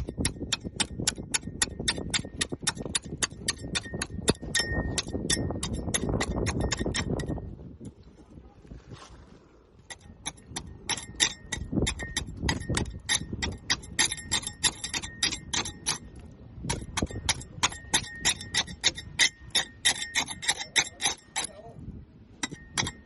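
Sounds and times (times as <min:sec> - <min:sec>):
scraper chipping barnacles: 0:09.7 - 0:21.8.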